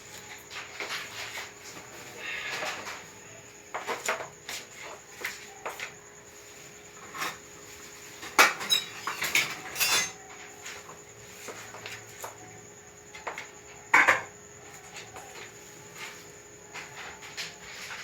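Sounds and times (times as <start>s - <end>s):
utensils and dishes clinking: 8.2s - 10.5s.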